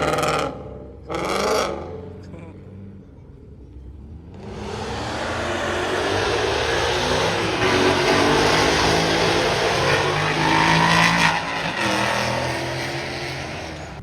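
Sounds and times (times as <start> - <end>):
car engine revving hard: 4.4 - 14.0.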